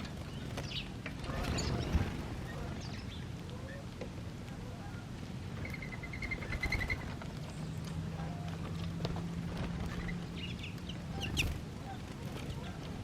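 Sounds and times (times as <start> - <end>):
birds chirping: 0.0 - 13.0
bird trill: 5.6 - 7.1.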